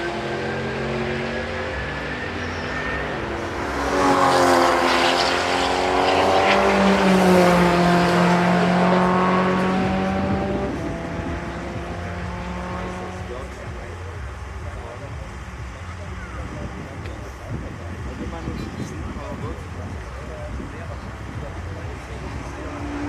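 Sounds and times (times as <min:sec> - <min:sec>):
race car engine passing by: 0:00.0 - 0:23.0.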